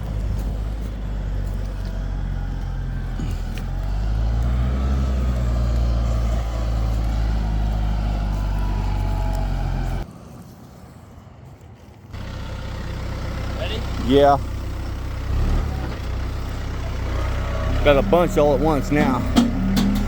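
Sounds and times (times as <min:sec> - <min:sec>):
engine idling with low hum: 0:00.0 - 0:04.6, 0:12.2 - 0:20.0.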